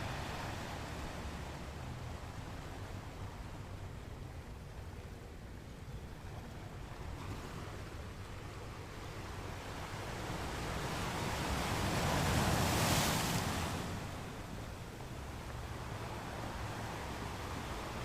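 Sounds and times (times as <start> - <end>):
ocean waves breaking: 8.8 - 18.0.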